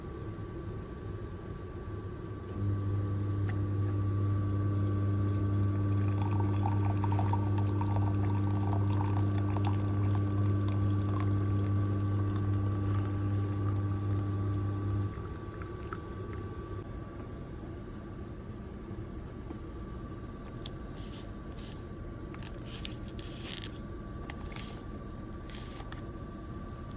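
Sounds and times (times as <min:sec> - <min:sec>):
drinks machine humming: 0:02.5 - 0:16.9
drink pouring into cup: 0:04.8 - 0:16.6.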